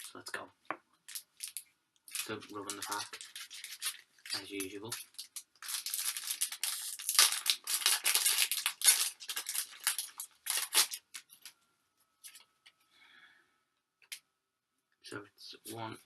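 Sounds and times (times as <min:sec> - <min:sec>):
foil wrapper tearing and crinkling: 0:01.1 - 0:11.3
faint rustles of cards: 0:01.1 - 0:12.9.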